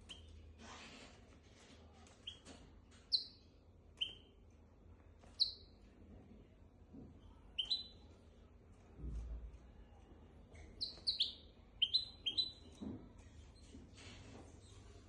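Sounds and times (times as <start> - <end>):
finch chirping: 2.2 - 3.4, 4.0 - 4.3, 5.2 - 5.7, 7.5 - 8.1, 10.7 - 12.8.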